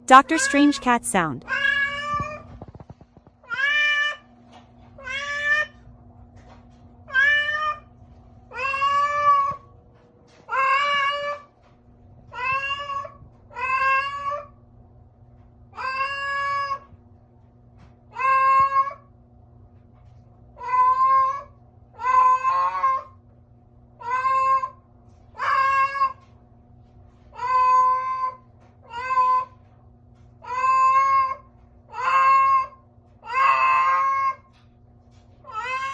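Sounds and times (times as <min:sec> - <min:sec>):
cat meowing: 0:05.0 - 0:05.8, 0:07.1 - 0:07.8, 0:08.5 - 0:09.6, 0:12.4 - 0:14.5, 0:15.8 - 0:16.9, 0:18.2 - 0:19.0, 0:20.6 - 0:23.1, 0:24.0 - 0:24.7, 0:25.4 - 0:26.2, 0:27.4 - 0:29.5, 0:30.4 - 0:34.4, 0:35.5 - 0:35.9.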